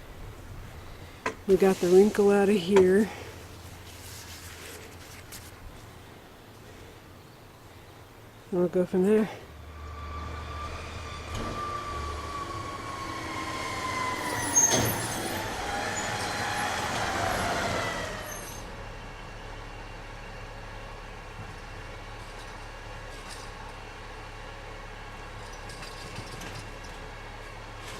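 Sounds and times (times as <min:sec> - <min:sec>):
truck passing by: 0:09.2 - 0:27.9.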